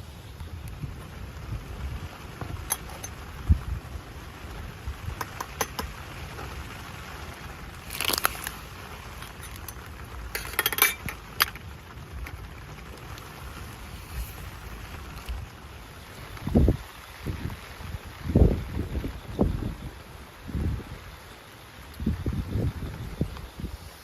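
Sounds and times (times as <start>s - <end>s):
low wind rumble: 0.0s - 24.0s
small hard objects clinking: 2.5s - 3.3s, 5.2s - 6.0s, 7.7s - 12.4s.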